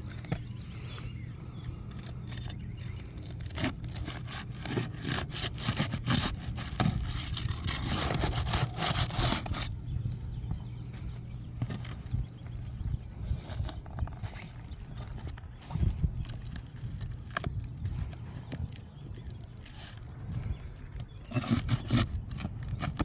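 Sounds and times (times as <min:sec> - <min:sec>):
steady low hum: 0:00.0 - 0:23.0
scraping and rubbing: 0:01.9 - 0:23.0.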